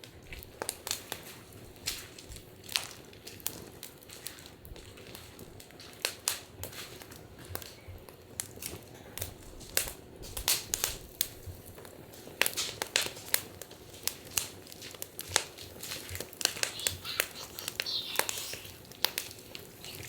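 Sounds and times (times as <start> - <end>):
wood fire crackling: 0.0 - 20.0
faint hiss: 15.4 - 20.0.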